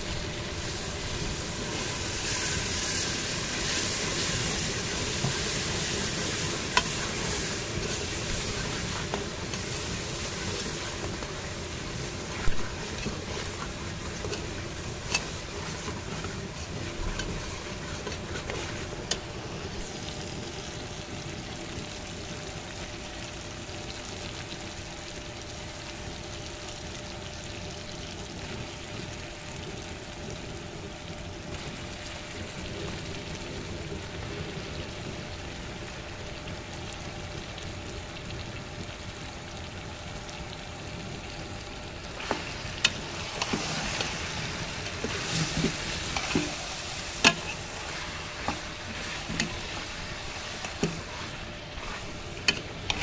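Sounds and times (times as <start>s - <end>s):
onions sizzling in oil: 0.0s - 53.0s.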